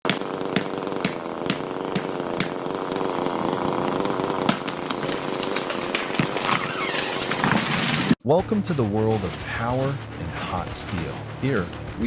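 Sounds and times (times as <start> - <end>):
small engine running: 0.0 - 8.2.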